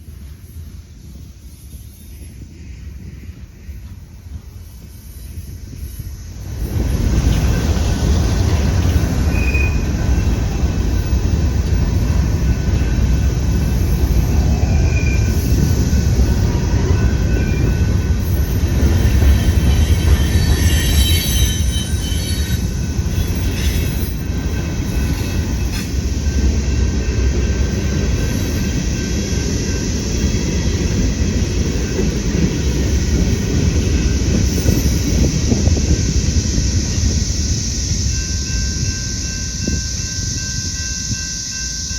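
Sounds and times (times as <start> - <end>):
train wheels rumbling on rails: 0.0 - 41.9
high-pitched wheel squeal: 9.2 - 10.4, 14.5 - 15.8, 16.9 - 24.3.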